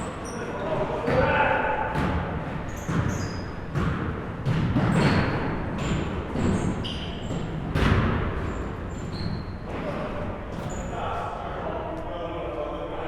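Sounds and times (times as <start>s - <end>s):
sneaker squeaks: 0.0s - 11.0s
basketball bouncing on wooden floor: 1.9s - 6.7s, 7.3s - 8.8s.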